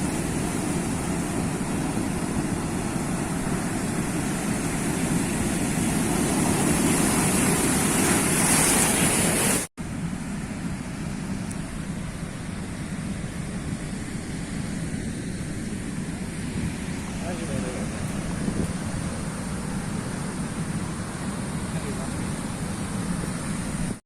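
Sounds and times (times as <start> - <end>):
sea waves washing: 0.0 - 24.0.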